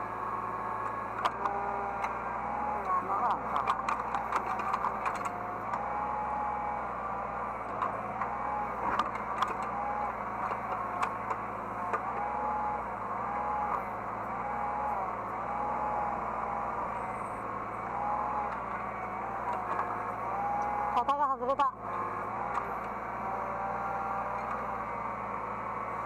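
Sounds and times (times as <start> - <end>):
excavator engine running under load: 0.0 - 26.0
hydraulic whine: 0.0 - 26.0
sharp clicks and knocks: 3.5 - 5.4.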